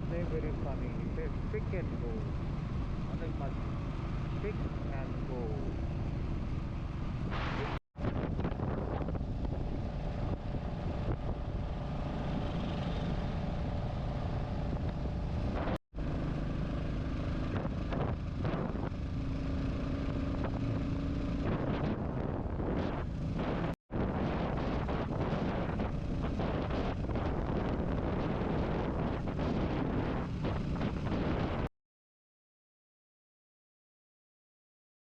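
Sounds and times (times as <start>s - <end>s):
motorcycle engine running: 0.0s - 31.7s
wind noise on microphone: 4.5s - 15.8s, 17.4s - 31.7s.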